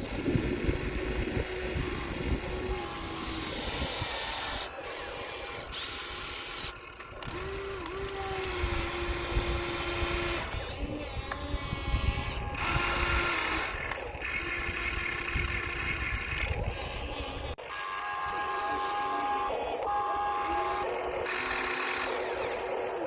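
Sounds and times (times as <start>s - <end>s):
small electric motors whining: 0.0s - 23.0s.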